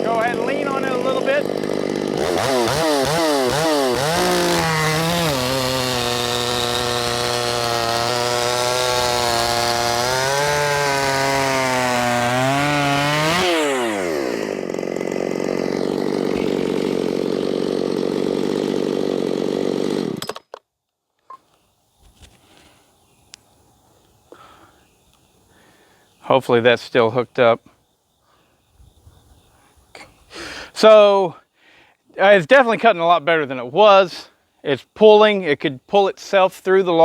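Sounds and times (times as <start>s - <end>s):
chainsaw cutting a log: 0.0s - 20.4s.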